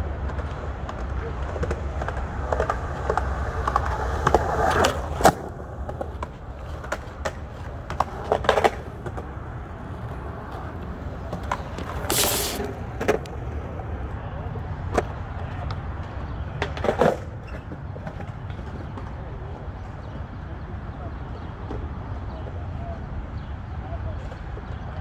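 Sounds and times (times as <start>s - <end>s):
skateboard clacks: 0.0s - 14.0s, 14.6s - 20.0s
skateboard wheels rolling: 0.0s - 20.9s
skateboard scrape: 10.0s - 13.1s.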